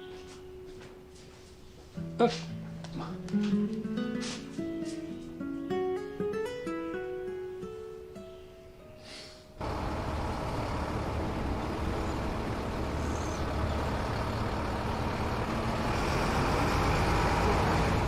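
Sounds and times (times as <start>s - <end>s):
music: 0.0s - 9.6s
truck engine rumbling: 9.6s - 18.0s.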